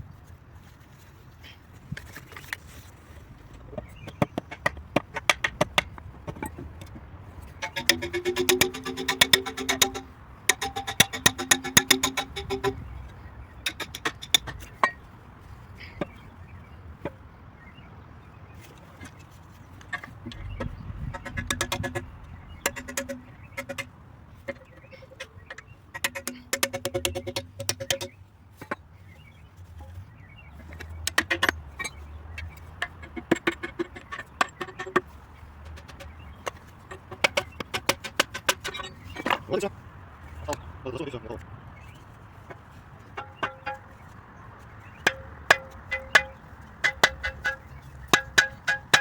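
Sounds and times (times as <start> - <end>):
metallic taps and clinks: 3.7 - 15.0, 19.8 - 28.8, 43.0 - 44.1, 45.0 - 49.0
hammer knocking on metal: 7.6 - 13.0, 13.6 - 15.0, 20.3 - 23.9, 26.0 - 28.1, 43.2 - 44.0, 45.0 - 49.0.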